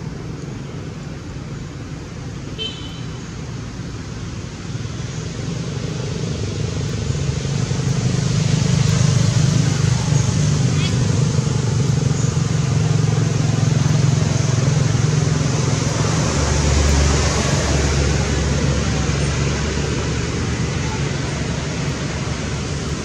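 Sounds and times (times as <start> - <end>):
vehicle engine noise with hiss: 0.0 - 23.0
deep engine rumble: 6.1 - 23.0.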